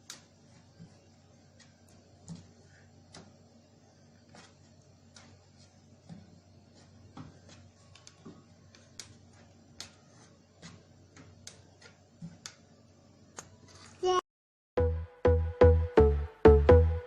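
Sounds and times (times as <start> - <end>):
small clicks and taps: 7.2 - 10.0, 10.6 - 12.6.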